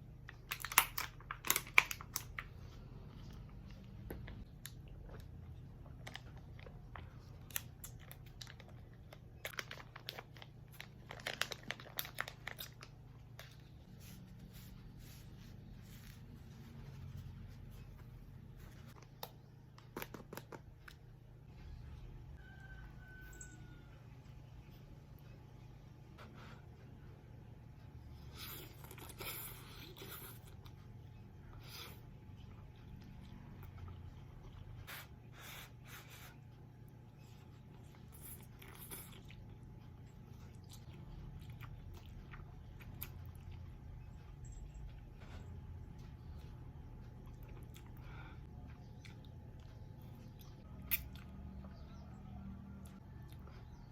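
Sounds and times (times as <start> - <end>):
low steady hum: 0.0 - 53.9
crisp eating crunches: 3.2 - 14.2, 37.2 - 51.6
person chewing food: 28.2 - 53.9.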